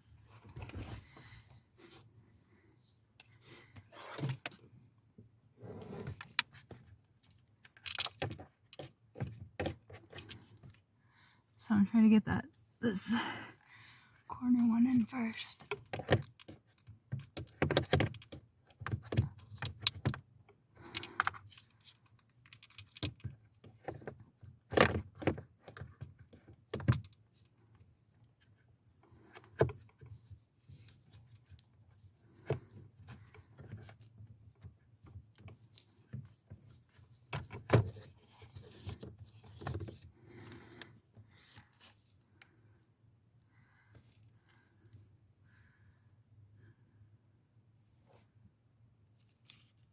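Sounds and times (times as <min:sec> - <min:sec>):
plastic parts clicking and knocking: 0:06.1 - 0:10.5, 0:15.6 - 0:27.2.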